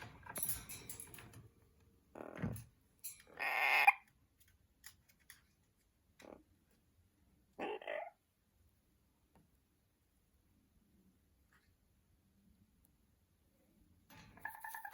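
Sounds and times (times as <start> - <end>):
parrot squawking: 3.4 - 4.0, 7.6 - 8.2.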